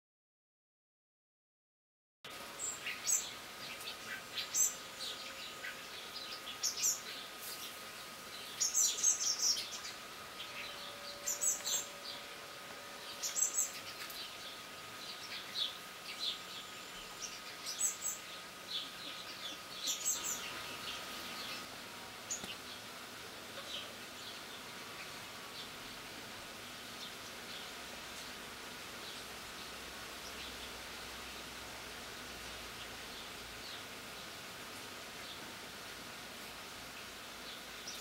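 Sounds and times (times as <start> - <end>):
birds chirping: 2.5 - 34.4
faint steady high tone: 9.6 - 13.8.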